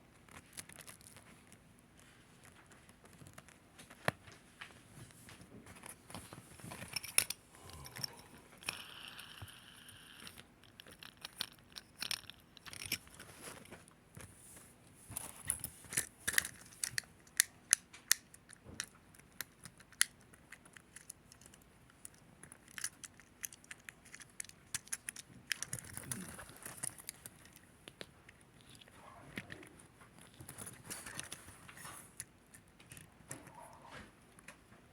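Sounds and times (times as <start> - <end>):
fidget toys clicking and snapping: 6.7 - 13.2, 15.3 - 31.4.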